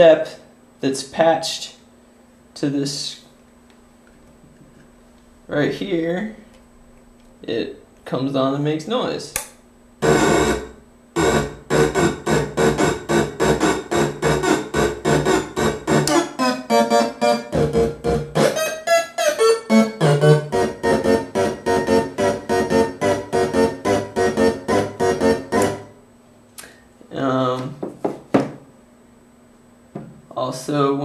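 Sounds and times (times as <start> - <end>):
rhythmic synth-like pulses: 10.0 - 25.9.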